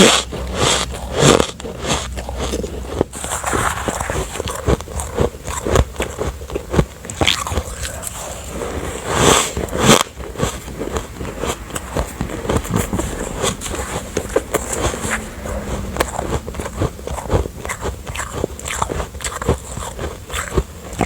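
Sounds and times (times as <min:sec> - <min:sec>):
biting and chewing ice: 0:00.0 - 0:21.0.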